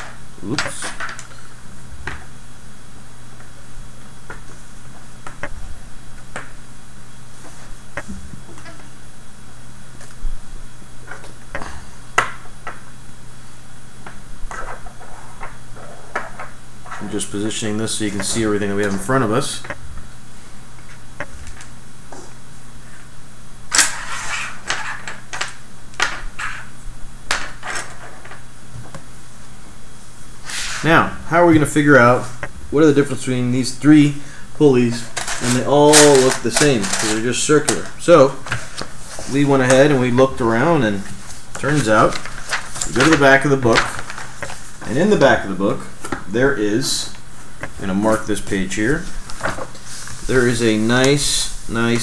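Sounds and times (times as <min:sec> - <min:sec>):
steady low hum: 0:00.0 - 0:52.0
plastic parts clicking: 0:35.1 - 0:37.9.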